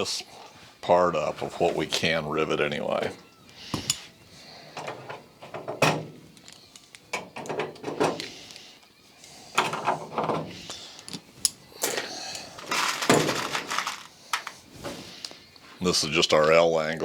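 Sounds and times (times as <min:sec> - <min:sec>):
metal parts and tools clicking: 0:04.8 - 0:08.3, 0:09.6 - 0:14.6.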